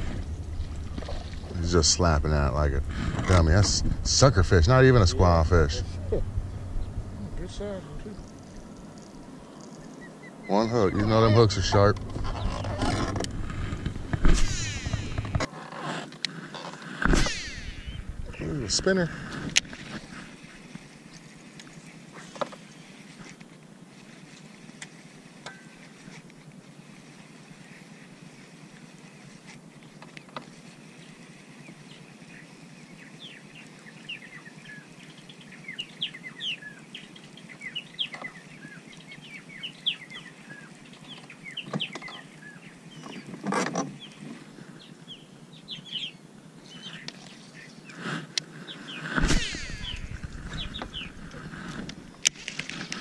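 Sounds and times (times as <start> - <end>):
bird chirping: 33.0 - 43.3, 44.8 - 47.8, 48.8 - 51.4.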